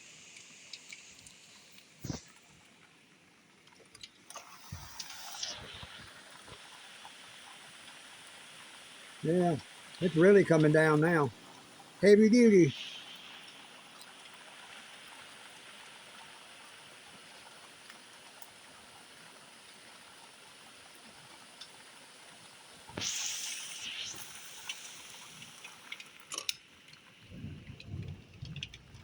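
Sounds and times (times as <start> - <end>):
heavy rain falling: 9.2 - 13.6, 27.2 - 29.0.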